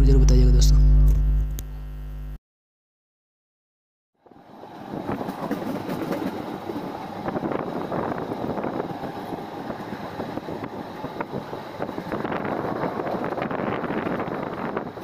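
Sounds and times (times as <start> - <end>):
train rumble and rattle: 4.3 - 15.0
wind on microphone: 4.6 - 15.0.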